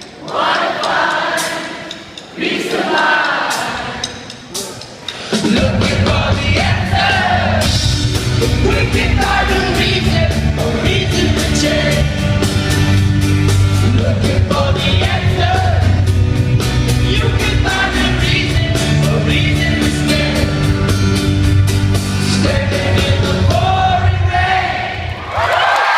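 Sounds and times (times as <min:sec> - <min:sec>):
live rock band: 0:03.5 - 0:24.8
person singing: 0:08.4 - 0:12.3.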